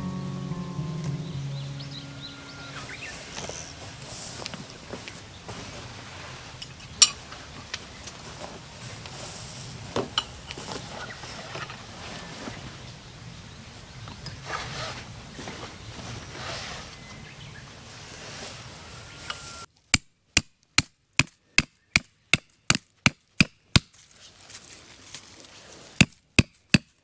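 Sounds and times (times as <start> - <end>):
rustling and handling: 2.4 - 19.7, 23.9 - 26.0
wood being chopped: 19.9 - 23.9, 26.0 - 26.9.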